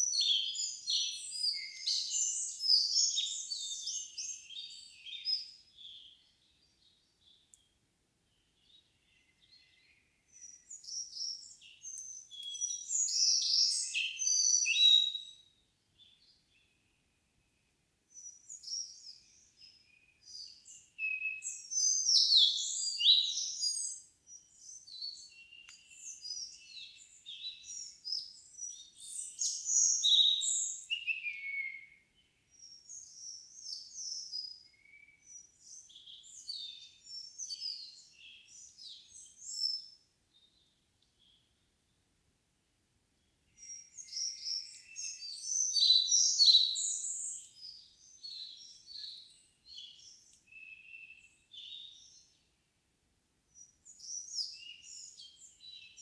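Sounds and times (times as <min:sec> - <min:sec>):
songbirds singing: 0:00.0 - 0:42.1, 0:43.2 - 0:52.7, 0:53.5 - 0:56.0.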